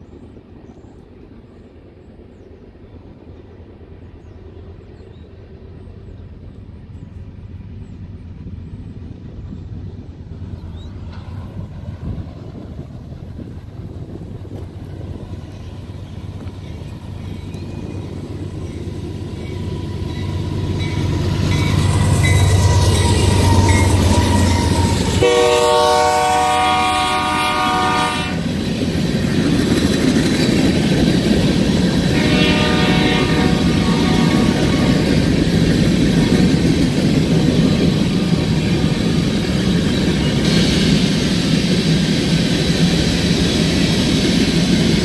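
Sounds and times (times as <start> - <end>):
diesel locomotive rumble: 0.0 - 45.0
train wheels rolling: 4.0 - 45.0
train air horn blast: 23.0 - 28.4, 32.1 - 35.2.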